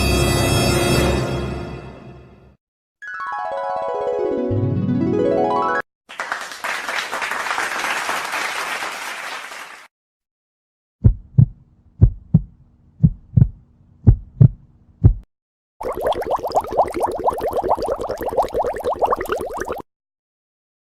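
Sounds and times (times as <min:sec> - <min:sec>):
applause: 0:06.1 - 0:09.9
heartbeat thumps: 0:11.0 - 0:15.3.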